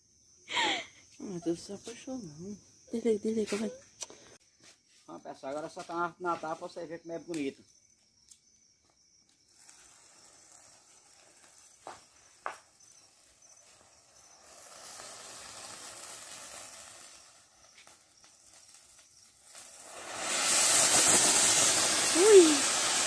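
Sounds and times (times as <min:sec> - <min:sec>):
firework fountain hissing: 0:00.5 - 0:03.9, 0:09.2 - 0:23.0
sharp pops: 0:17.7 - 0:23.0.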